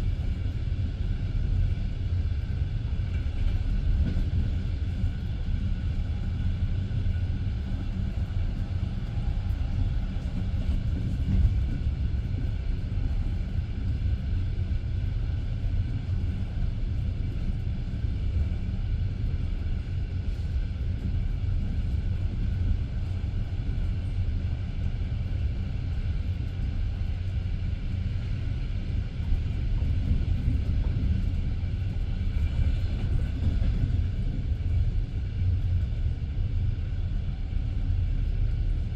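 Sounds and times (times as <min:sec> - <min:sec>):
train wheels rumbling on track: 0:00.0 - 0:38.9.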